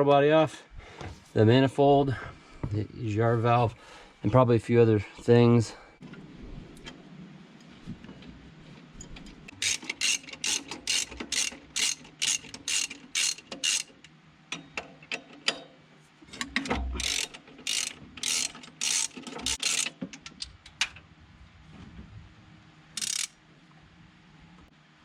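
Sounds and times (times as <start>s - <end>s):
socket ratchet clicking: 9.5s - 15.6s, 16.4s - 20.8s, 23.0s - 23.4s.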